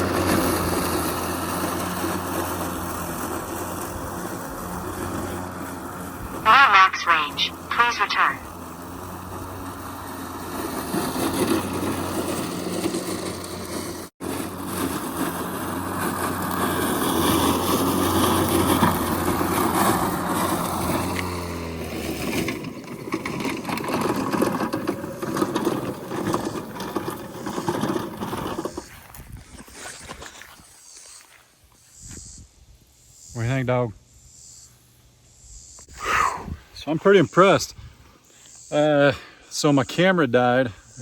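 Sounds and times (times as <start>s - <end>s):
robotic mower motor hum: 0.0s - 31.0s.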